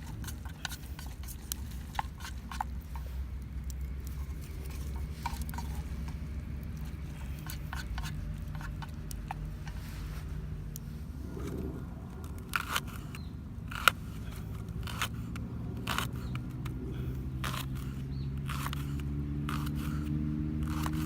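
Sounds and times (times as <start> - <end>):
low steady drone: 2.7 - 18.4.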